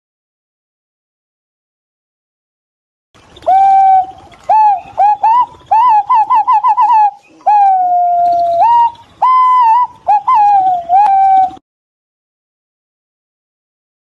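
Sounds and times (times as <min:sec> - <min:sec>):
pigeon fluting whistles: 0:03.4 - 0:11.6.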